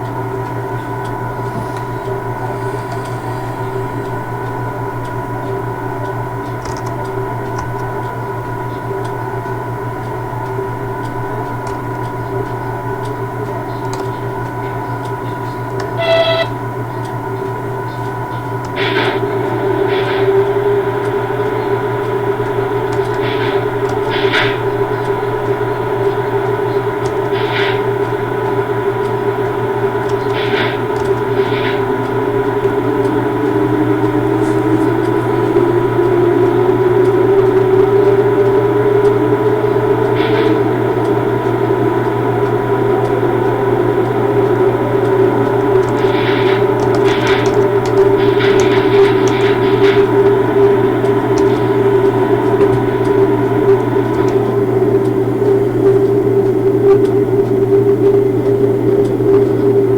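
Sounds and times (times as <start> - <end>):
locomotive electrical hum: 0.0 - 59.9.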